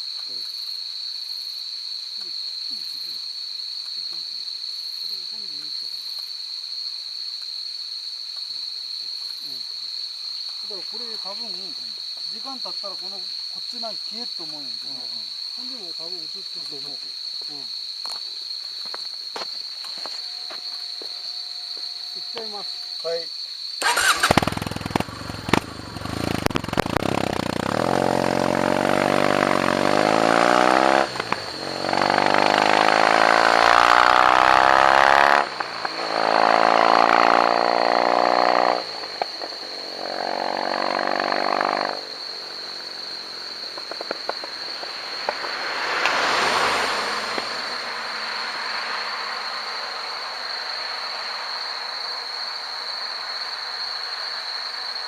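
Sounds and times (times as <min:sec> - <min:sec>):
motorcycle engine revving and idling: 0:23.8 - 0:43.1.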